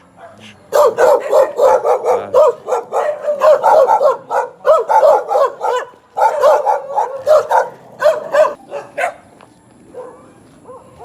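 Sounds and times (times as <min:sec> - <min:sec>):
dogs barking loudly: 0:00.0 - 0:11.0.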